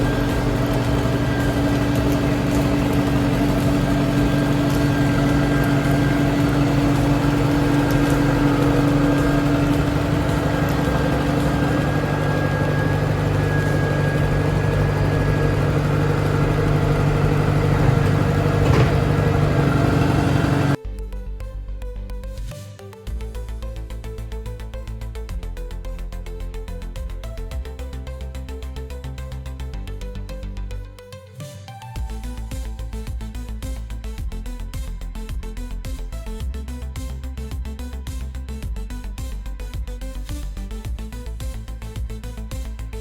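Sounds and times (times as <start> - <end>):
earthmoving machine engine running: 0.0 - 20.8.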